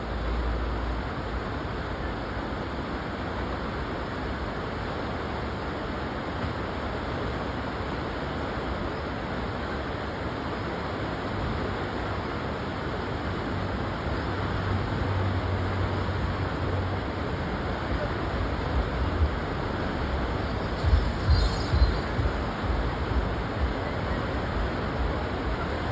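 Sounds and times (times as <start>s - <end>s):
river white water rushing: 0.0s - 25.9s
low rumbling bumps: 18.3s - 25.9s.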